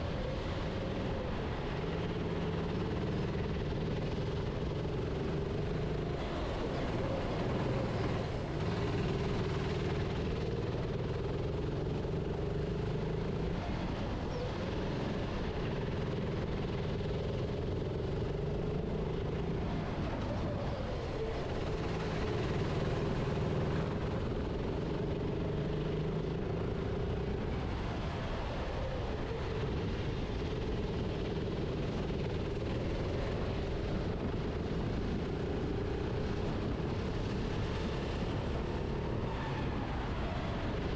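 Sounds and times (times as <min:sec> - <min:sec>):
go-kart engine running hard: 0:00.0 - 0:40.9.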